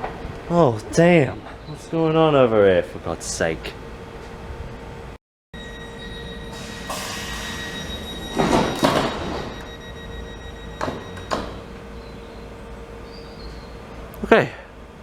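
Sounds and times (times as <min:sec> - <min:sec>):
electric train whine: 0:03.0 - 0:15.0
sliding doors working: 0:05.6 - 0:14.1.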